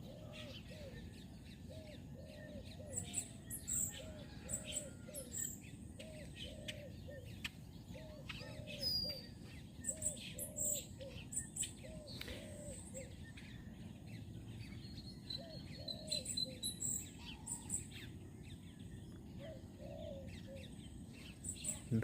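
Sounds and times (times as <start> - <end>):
low bird call: 0.0 - 13.8.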